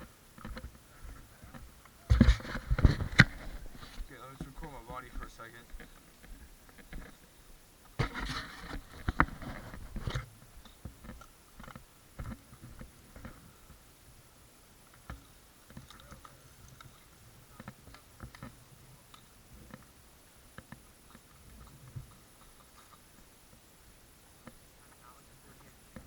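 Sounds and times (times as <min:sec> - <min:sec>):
camera handling rustling: 0:02.1 - 0:04.1.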